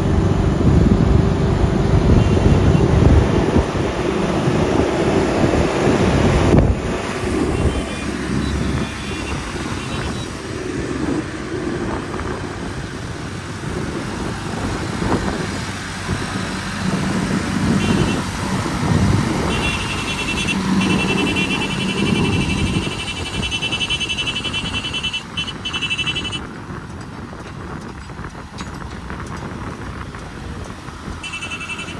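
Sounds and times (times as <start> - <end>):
heavy vehicle engine rumbling: 0.0 - 31.9.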